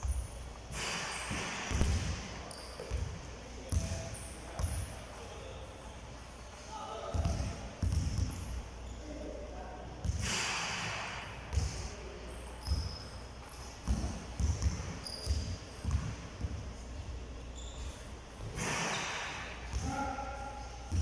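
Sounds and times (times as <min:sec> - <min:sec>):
basketballs bouncing on floor: 0:00.0 - 0:04.9, 0:07.1 - 0:08.5, 0:11.5 - 0:11.8, 0:13.8 - 0:16.7
shoe squeaks: 0:00.0 - 0:05.9, 0:08.2 - 0:09.3, 0:12.3 - 0:16.0, 0:17.4 - 0:19.3.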